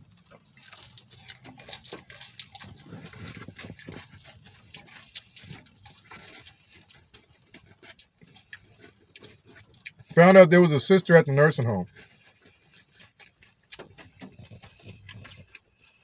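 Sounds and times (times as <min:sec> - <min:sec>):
man chewing food: 0:00.0 - 0:10.5, 0:11.2 - 0:16.0.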